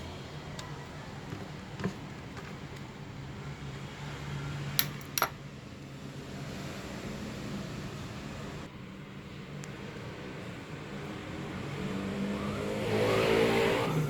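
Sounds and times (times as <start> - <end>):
tool prying open housing clicks: 4.8 - 5.4.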